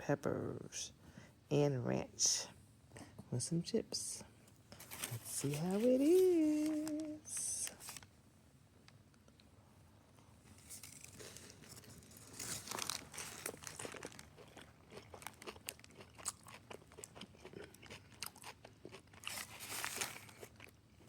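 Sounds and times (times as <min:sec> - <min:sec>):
wet chewing and crunching: 0:10.8 - 0:21.0.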